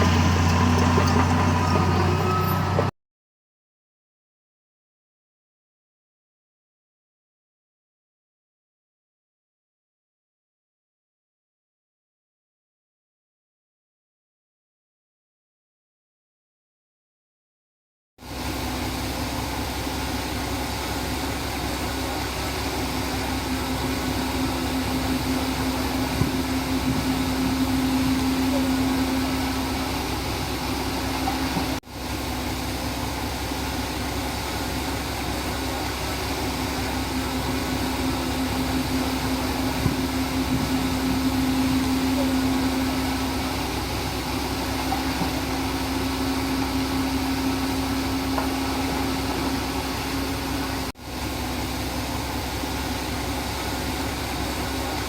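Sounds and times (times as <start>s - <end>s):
bulldozer diesel engine droning: 0.0s - 2.9s, 18.2s - 55.0s.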